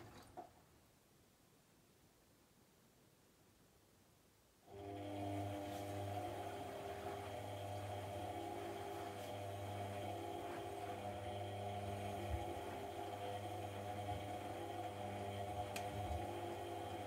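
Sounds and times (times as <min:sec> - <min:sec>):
washing machine humming: 0:04.7 - 0:17.0.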